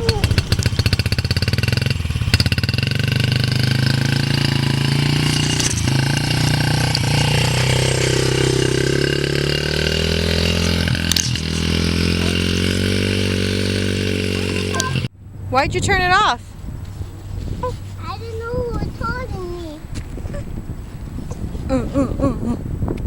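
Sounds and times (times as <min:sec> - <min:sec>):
small dirt bike engine: 0:00.0 - 0:15.1.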